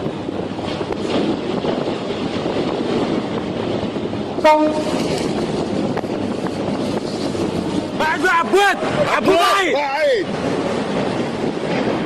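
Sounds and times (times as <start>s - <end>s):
wind: 0.0s - 12.0s
rushing water: 3.8s - 12.0s.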